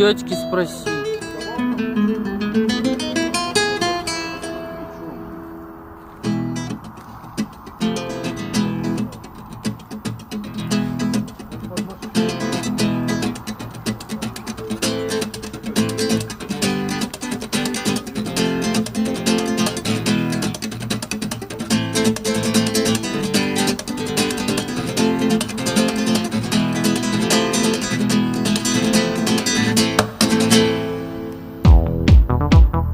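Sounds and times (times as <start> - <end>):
strummed acoustic guitar: 0.0 - 32.7
deep electronic bass beat: 31.7 - 32.9.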